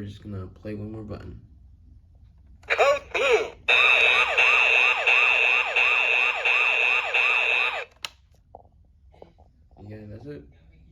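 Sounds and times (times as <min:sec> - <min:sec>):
toy fire engine siren: 0:02.7 - 0:07.9.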